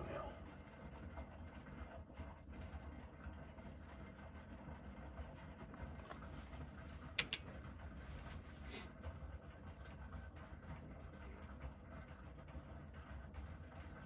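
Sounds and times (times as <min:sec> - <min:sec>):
steady low hum: 0:00.0 - 0:14.0
sharp clicks: 0:07.2 - 0:07.4.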